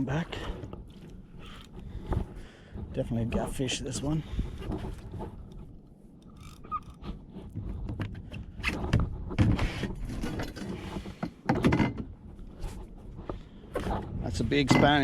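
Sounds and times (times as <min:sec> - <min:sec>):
fishing gear handling: 0:00.0 - 0:08.9
camera mount rattling: 0:04.6 - 0:08.9.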